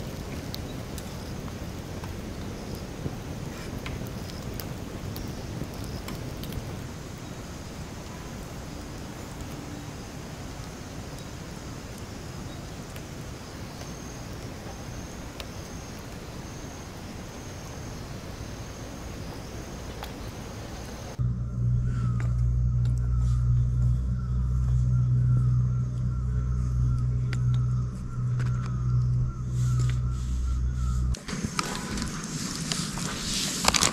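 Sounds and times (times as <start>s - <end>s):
loud low steady hum: 21.2s - 31.2s
outdoor rushing noise: 30.0s - 33.9s.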